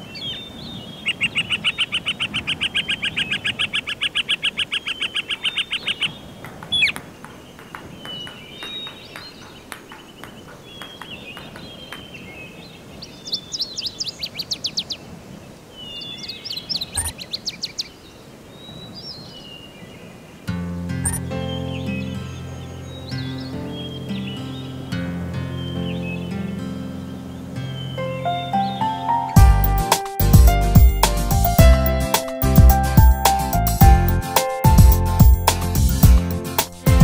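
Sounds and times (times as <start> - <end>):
bird trilling and chirping: 0.2 - 14.9, 16.0 - 17.9, 21.0 - 24.5.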